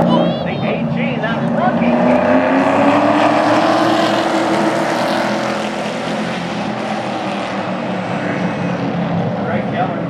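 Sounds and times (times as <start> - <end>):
race engines at full throttle: 0.0 - 10.0.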